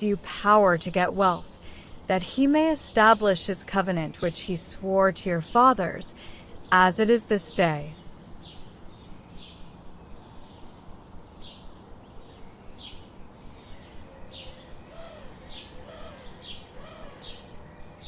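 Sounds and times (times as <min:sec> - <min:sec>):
birds chirping: 0:00.0 - 0:18.0
low rising and falling bird call: 0:07.9 - 0:18.0.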